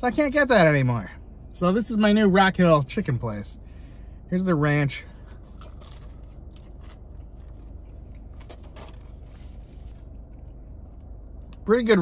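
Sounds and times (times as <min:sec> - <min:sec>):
low steady hum: 0:00.0 - 0:12.0
food crunching while chewing: 0:05.2 - 0:11.6.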